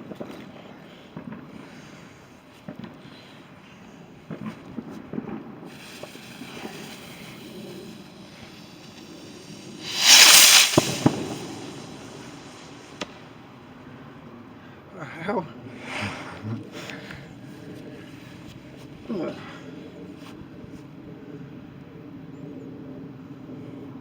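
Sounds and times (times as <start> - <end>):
firework cracks: 4.4 - 13.6
firework hiss: 5.6 - 13.6
small pops: 5.8 - 13.2.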